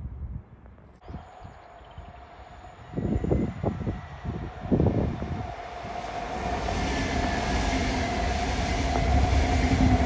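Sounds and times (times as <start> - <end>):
train rumble and rail noise: 1.0 - 10.0.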